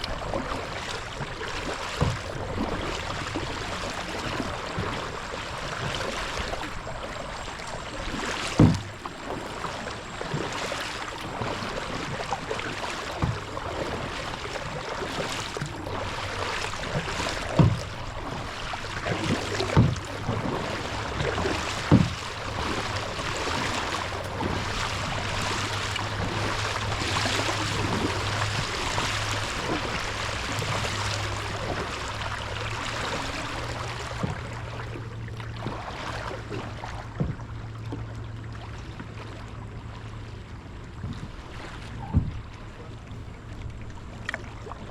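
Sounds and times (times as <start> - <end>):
low steady hum: 0.0 - 44.9
paddle splashing water: 0.0 - 44.9
sharp knocks: 8.6 - 9.0.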